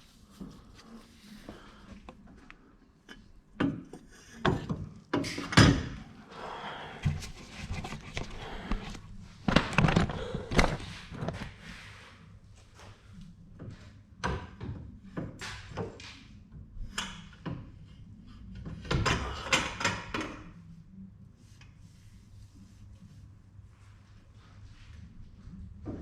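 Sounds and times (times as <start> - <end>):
rubbing and scraping: 7.0 - 12.2.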